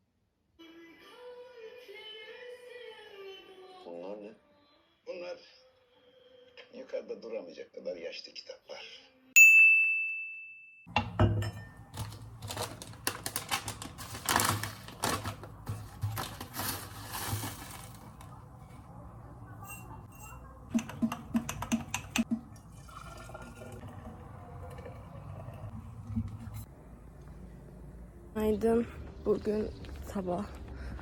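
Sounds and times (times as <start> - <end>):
bright ding: 9.4 - 10.9
kitchenware clinking: 10.9 - 23.8
liquid pouring: 21.4 - 26.7.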